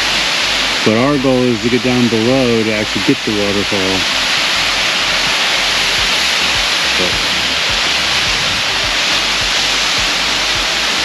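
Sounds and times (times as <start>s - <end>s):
waterfall roaring: 0.0s - 11.0s
soft low thumps: 4.0s - 11.0s.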